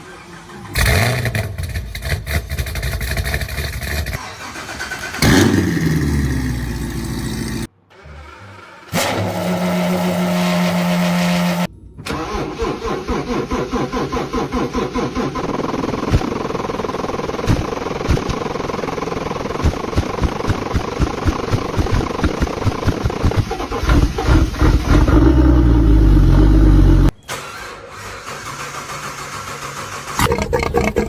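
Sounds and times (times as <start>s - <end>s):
engine at high steady rev: 4.8s - 7.7s, 8.9s - 11.7s, 13.0s - 27.1s
car engine revving: 8.9s - 15.5s, 20.0s - 27.1s
engine running with lumpy pulse: 14.4s - 27.1s.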